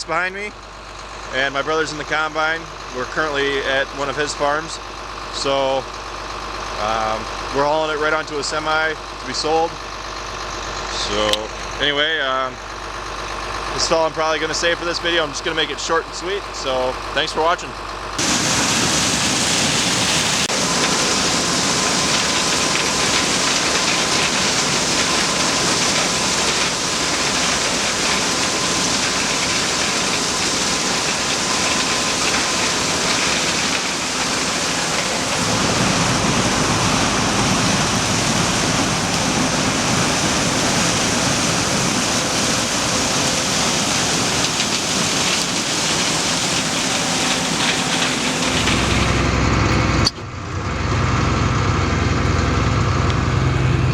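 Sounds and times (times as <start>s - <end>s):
harvesting machinery rushing noise: 17.8s - 53.9s
deep low rumble: 46.8s - 53.9s.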